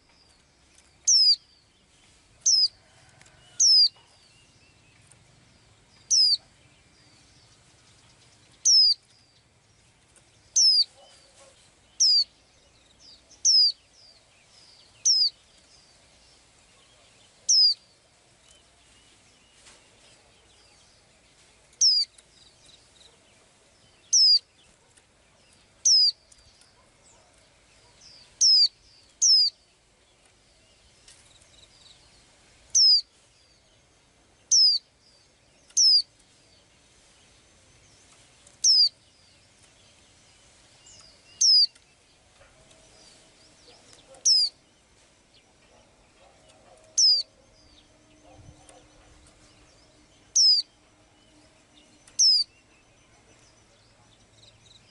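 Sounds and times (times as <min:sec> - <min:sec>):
songbird high descending call: 0:50.3 - 0:51.3.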